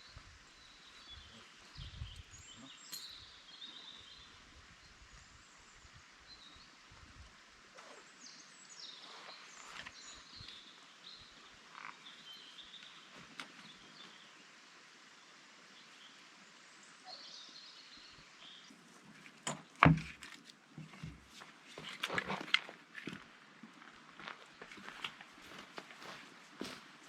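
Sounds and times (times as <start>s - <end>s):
faint bird chirps: 0.0s - 6.8s, 15.8s - 18.7s
sharp knocks and crackles: 19.4s - 21.3s.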